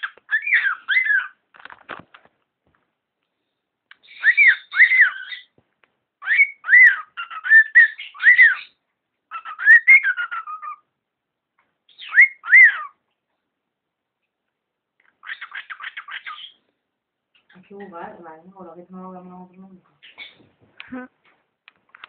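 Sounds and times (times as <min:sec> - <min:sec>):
cockatiel whistling: 0:04.0 - 0:05.5, 0:06.2 - 0:10.8, 0:11.9 - 0:12.9.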